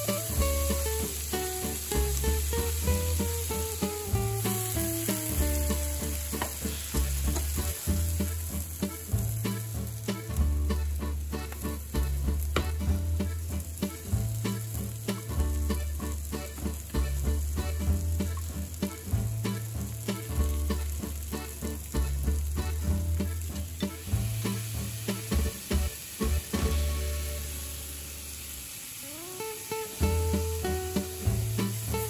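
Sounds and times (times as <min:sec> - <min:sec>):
onions and mushrooms sizzling in pan: 0:00.0 - 0:32.0
food clicking and tapping in pan: 0:06.3 - 0:07.7, 0:12.6 - 0:12.8.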